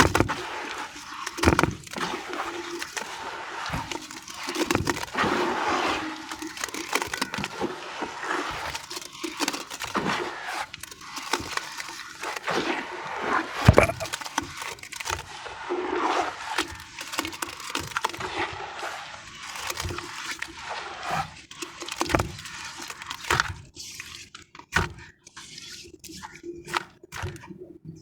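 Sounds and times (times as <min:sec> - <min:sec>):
sand discs crunching: 0:13.7 - 0:14.1.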